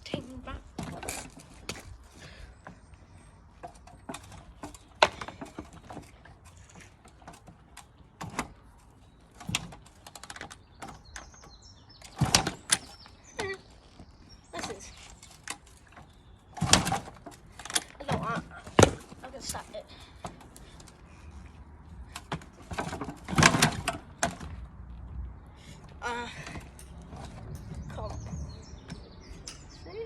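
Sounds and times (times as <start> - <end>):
knocks and clunks: 0.0 - 1.9, 3.5 - 25.4.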